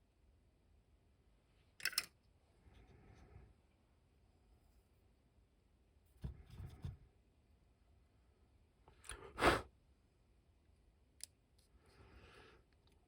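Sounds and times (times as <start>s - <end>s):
breath-like puff: 9.4s - 9.7s.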